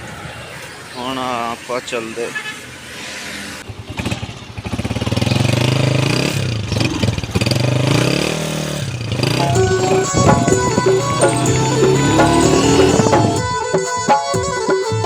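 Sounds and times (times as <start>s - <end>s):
motorcycle engine revving: 3.6s - 13.4s
background music: 9.4s - 15.0s.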